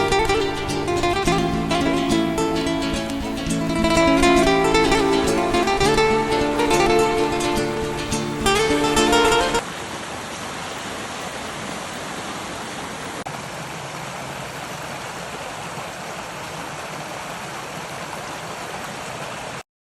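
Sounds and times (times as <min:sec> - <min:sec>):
flowing water rushing: 0:00.0 - 0:19.6.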